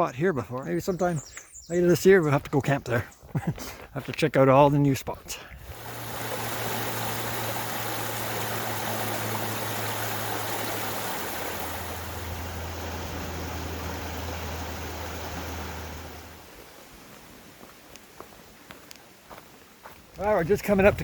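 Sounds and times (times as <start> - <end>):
water rushing in a stream: 5.6 - 19.3
low hum: 5.7 - 16.5.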